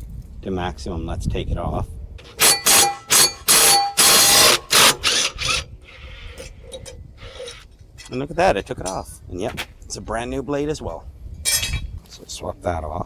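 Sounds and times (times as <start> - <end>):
power tool bursts: 2.2 - 6.0.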